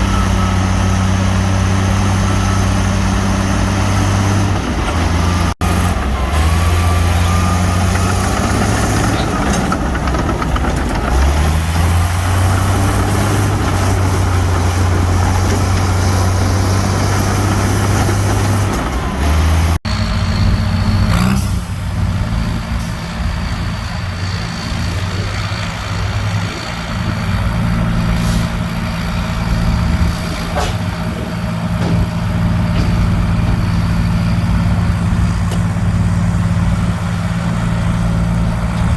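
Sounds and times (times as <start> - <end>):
heavy diesel engines running: 0.0 - 38.9.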